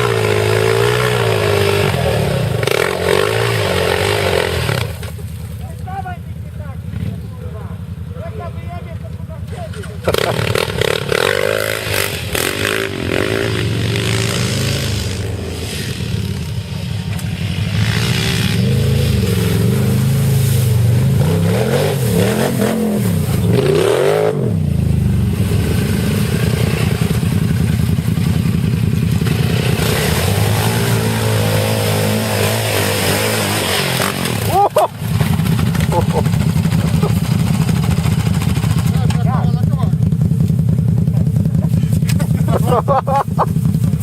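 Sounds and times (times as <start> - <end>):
off-road vehicle engine revving: 0.0 - 44.0.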